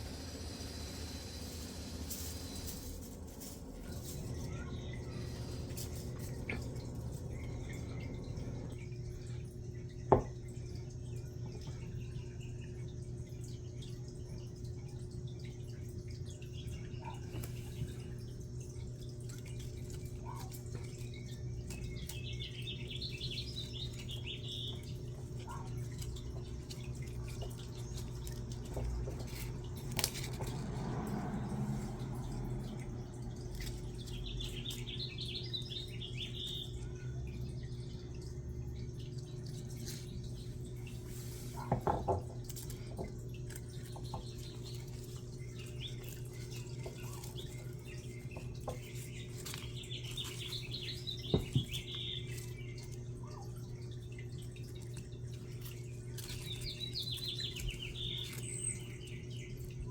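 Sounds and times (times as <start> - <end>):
steady low hum: 0.0 - 59.9
bird chirping: 20.2 - 28.0, 32.9 - 37.7, 43.7 - 54.1, 55.5 - 59.9.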